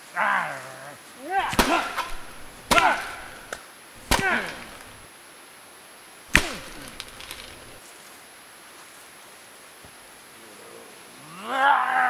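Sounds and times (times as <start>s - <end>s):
sharp whacks: 1.4s - 5.0s, 6.3s - 7.8s.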